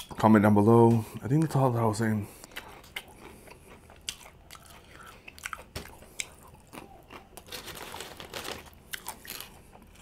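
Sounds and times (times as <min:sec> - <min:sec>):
person chewing food: 0:02.4 - 0:10.0.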